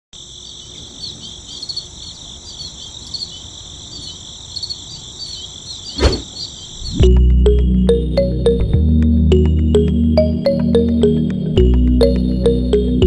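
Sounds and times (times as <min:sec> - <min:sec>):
crickets chirping: 0:00.2 - 0:07.2.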